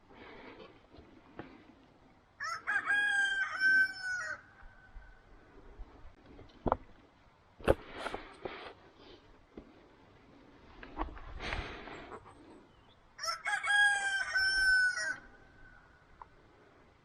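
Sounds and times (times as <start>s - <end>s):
rooster crowing: 2.4s - 4.9s, 13.2s - 15.9s.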